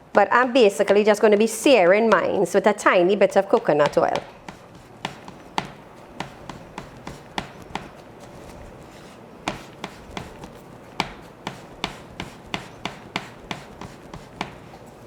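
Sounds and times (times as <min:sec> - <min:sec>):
hands patting dough: 0:03.3 - 0:15.0.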